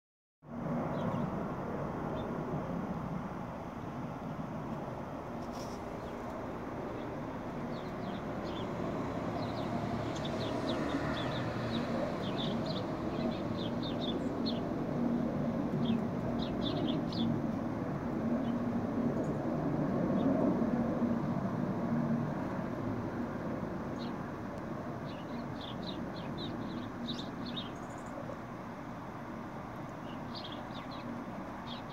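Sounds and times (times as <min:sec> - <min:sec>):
songbirds chirping: 0:05.4 - 0:19.4, 0:23.8 - 0:31.9.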